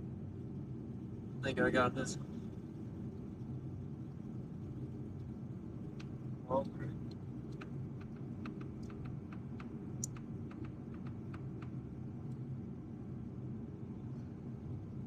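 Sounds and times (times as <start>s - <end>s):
steady low hum: 0.0s - 15.0s
light irregular clicking: 5.2s - 12.5s.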